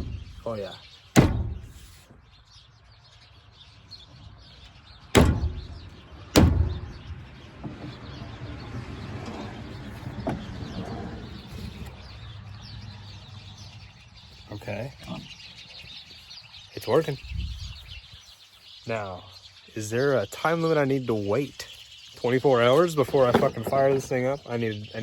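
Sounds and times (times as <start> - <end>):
sharp knocks: 1.2 - 1.8, 5.2 - 7.0.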